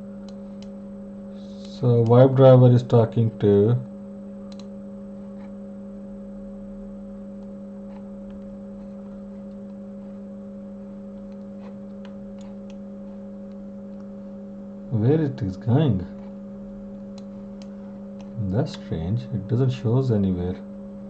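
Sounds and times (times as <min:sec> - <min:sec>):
electrical mains hum: 0:00.0 - 0:21.0
faint light clicks: 0:04.5 - 0:04.7, 0:16.9 - 0:18.8.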